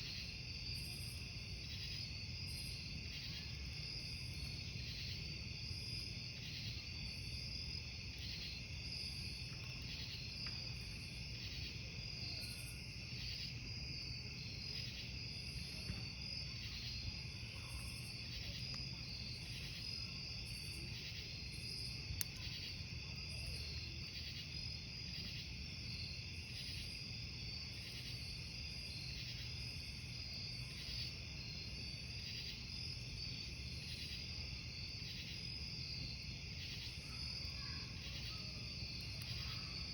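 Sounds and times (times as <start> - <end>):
campfire rumble: 0.0 - 39.9
crickets chirping: 0.0 - 39.9
fire crackle popping: 18.1 - 24.1.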